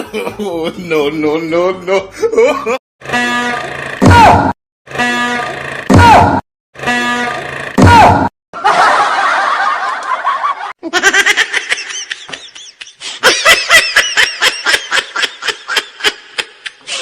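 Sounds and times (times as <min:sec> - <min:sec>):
overlapping laughter: 0:08.6 - 0:17.0.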